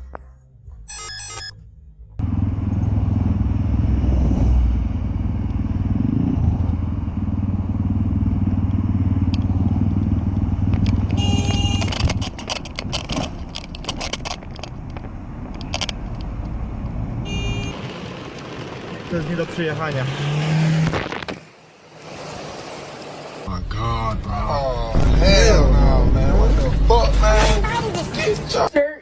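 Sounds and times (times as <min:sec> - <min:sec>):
vehicle engine and road noise: 0:00.0 - 0:28.8
short electronic beep: 0:00.9 - 0:01.6.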